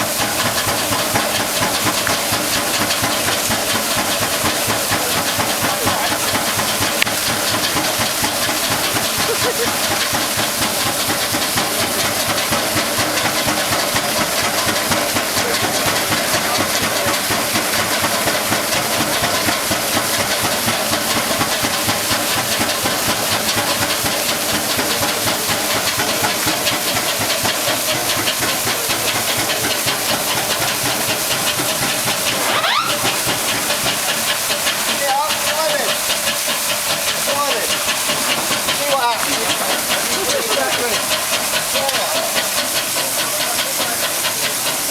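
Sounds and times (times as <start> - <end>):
steam engine hissing and beating: 0.0 - 44.9.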